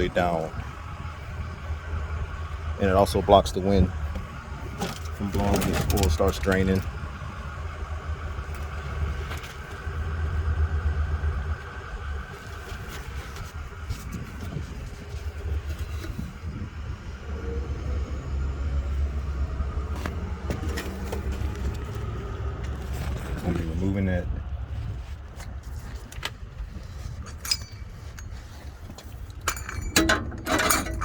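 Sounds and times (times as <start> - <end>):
wind buffeting microphone: 0.0 - 20.7.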